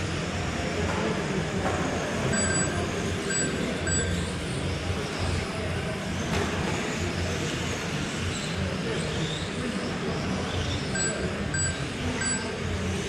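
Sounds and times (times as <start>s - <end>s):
radio-controlled trucks racing: 0.0s - 13.0s
short electronic beeps: 2.3s - 4.2s, 11.0s - 12.6s.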